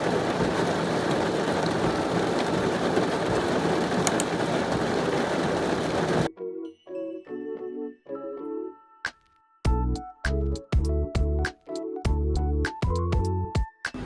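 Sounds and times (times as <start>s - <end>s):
heavy rain falling: 0.0s - 6.3s.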